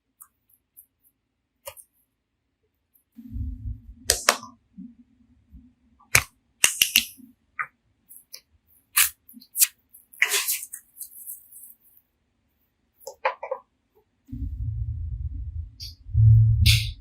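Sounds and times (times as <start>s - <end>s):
faint low hum: 2.9s - 6.6s, 14.3s - 17.0s.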